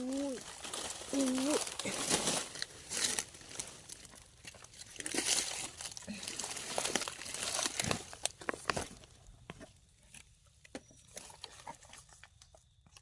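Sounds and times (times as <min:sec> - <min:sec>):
dry leaves rustling and crackling: 0:00.0 - 0:09.2.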